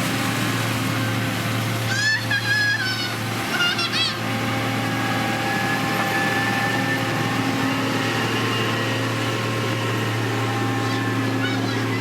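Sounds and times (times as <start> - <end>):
diesel engine humming: 0.0 - 12.0.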